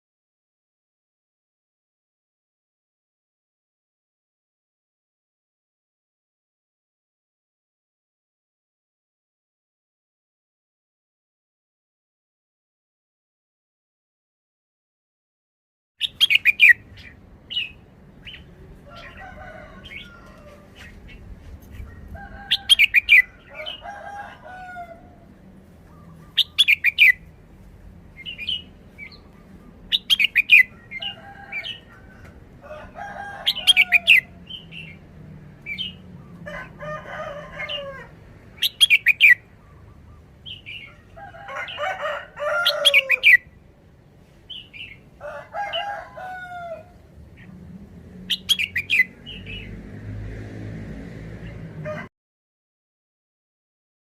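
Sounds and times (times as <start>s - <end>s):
bird chirping loudly: 16.0s - 19.1s, 25.9s - 27.3s, 28.2s - 31.8s, 38.6s - 41.0s, 48.3s - 49.8s.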